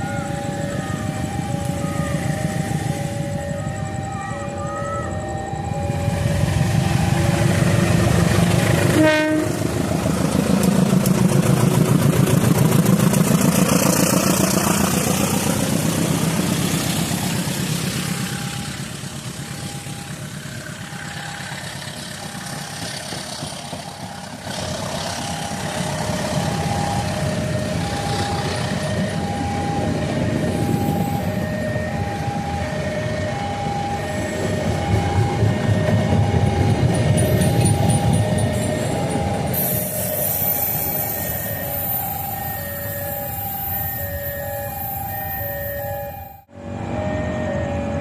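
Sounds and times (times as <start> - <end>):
two-tone level-crossing alarm: 0.0 - 9.6, 13.2 - 48.0
train horn toot: 8.8 - 9.8
train wheels clattering over rails: 9.6 - 26.8, 34.4 - 39.8.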